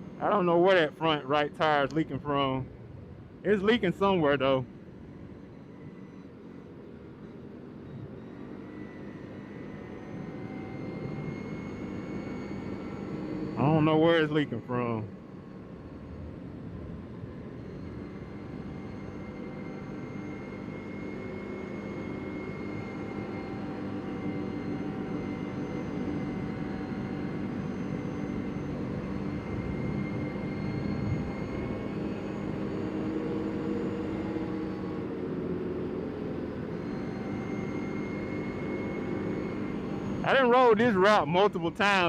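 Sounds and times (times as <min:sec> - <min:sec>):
atv engine droning: 0:00.0 - 0:02.8, 0:08.5 - 0:15.1, 0:17.9 - 0:42.0.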